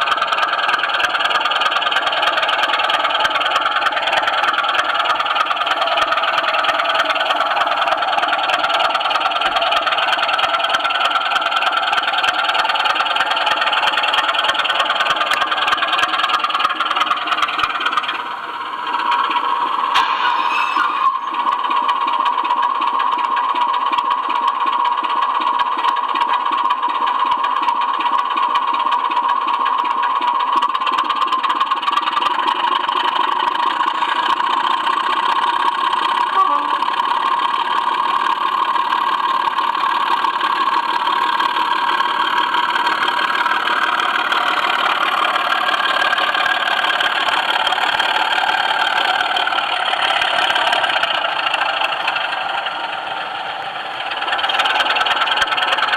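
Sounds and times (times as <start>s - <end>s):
model train wheels rattling on rails: 0.0s - 55.9s.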